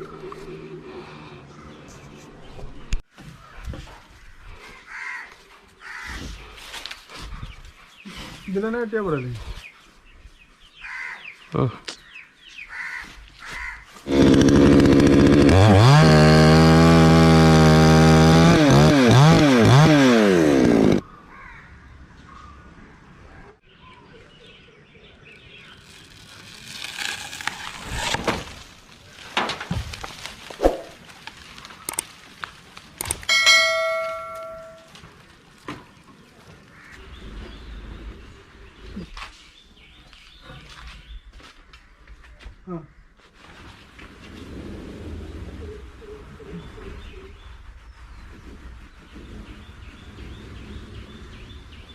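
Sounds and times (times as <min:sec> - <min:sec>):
chainsaw running at high revs: 0:14.1 - 0:21.0
short metallic ring: 0:33.3 - 0:34.9.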